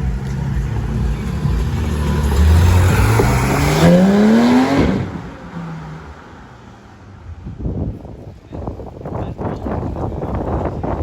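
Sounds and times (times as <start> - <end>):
car engine accelerating hard: 0.0 - 6.5.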